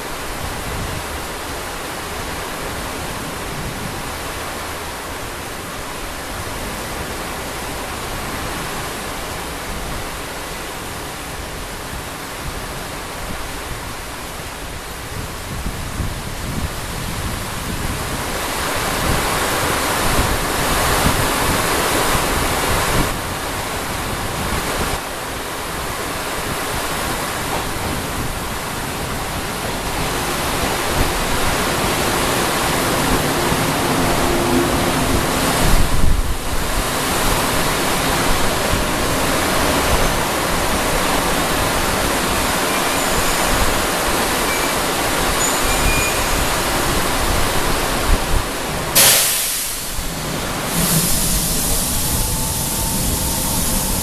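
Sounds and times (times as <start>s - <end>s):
faint low train hum: 0.0s - 54.0s
heavy rain hissing: 0.0s - 54.0s.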